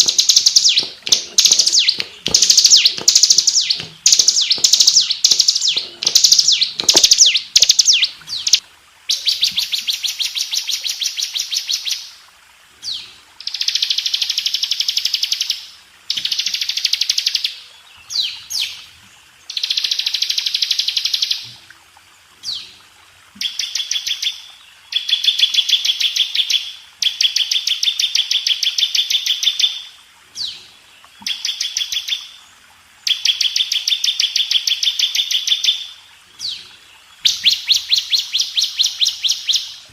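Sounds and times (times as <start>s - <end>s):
bird singing high trills: 0.0s - 9.5s, 37.2s - 39.8s.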